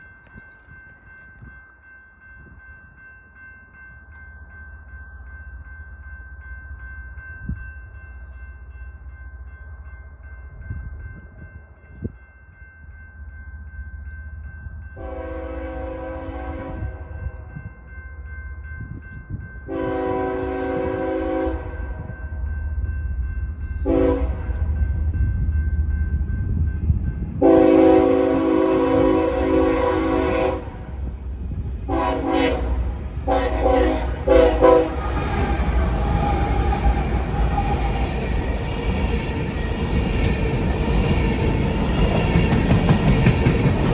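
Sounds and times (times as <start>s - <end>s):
locomotive chime air horn: 15.0s - 17.3s, 19.7s - 22.0s, 23.8s - 24.7s, 27.4s - 30.9s, 31.9s - 37.1s
diesel locomotive rumble: 23.8s - 43.9s.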